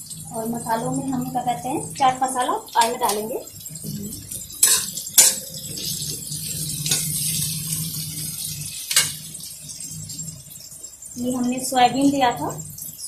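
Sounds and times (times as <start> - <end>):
vegetables sizzling in oil: 0.0 - 13.0
steel spoon clinking on pan: 4.6 - 5.5.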